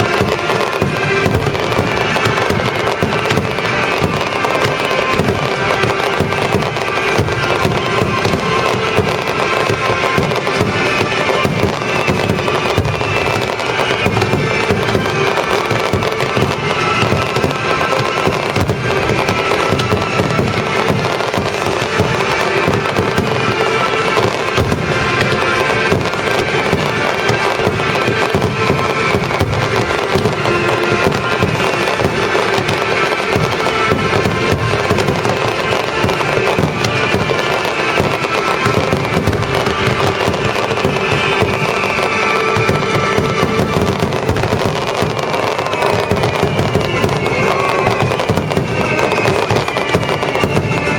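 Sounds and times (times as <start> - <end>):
fireworks crackling and banging: 0.0 - 50.9
symphonic music: 0.0 - 50.9.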